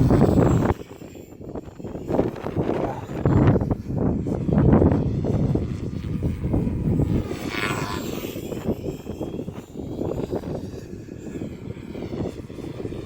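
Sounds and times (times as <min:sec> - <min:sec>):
helicopter rotor and motor whine: 0:00.0 - 0:13.0
wind buffeting microphone: 0:00.0 - 0:13.0.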